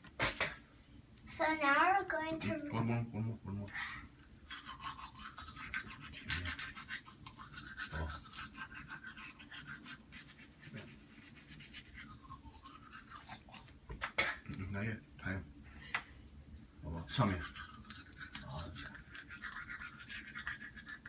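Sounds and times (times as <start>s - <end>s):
toothbrush scrubbing teeth: 4.4s - 13.8s, 17.0s - 21.0s.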